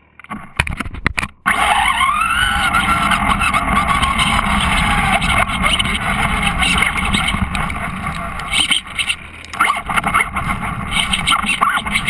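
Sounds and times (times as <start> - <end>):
propeller aircraft engine running: 2.6 - 12.0.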